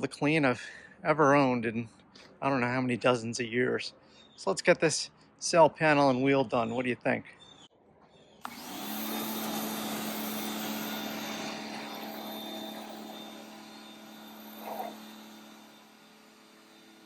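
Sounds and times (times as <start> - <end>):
pressure washer humming: 8.4 - 17.0.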